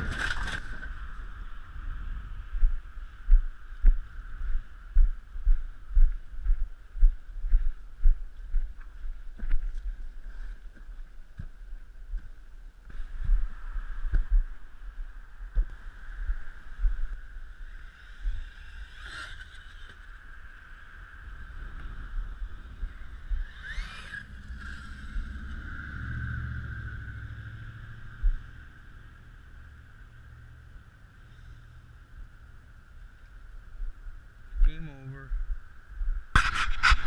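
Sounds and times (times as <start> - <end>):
low bumps: 0.0 - 37.0
rc truck motor whine: 17.7 - 30.0.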